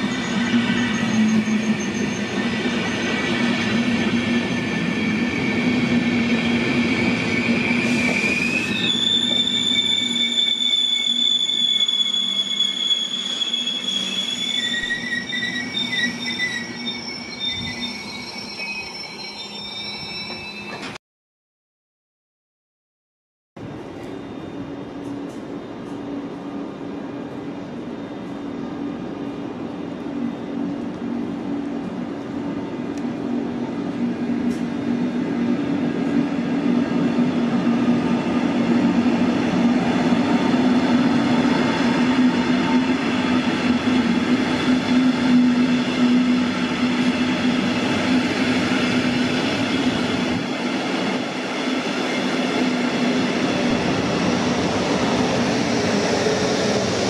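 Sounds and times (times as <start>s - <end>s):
train wheels on rails: 0.0s - 18.4s, 23.6s - 57.0s
electric locomotive passing: 0.0s - 20.9s, 23.6s - 57.0s.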